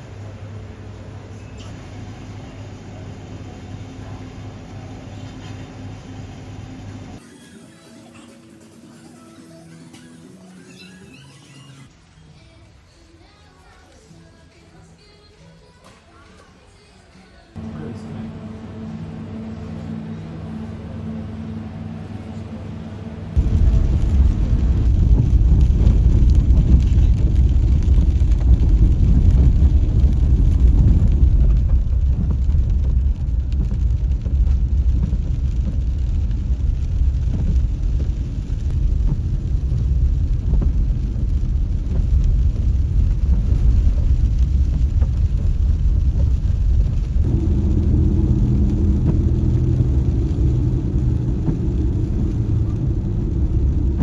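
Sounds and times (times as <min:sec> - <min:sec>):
road and engine rumble: 0:00.0 - 0:07.2, 0:17.6 - 0:54.0
steady hum: 0:17.6 - 0:54.0.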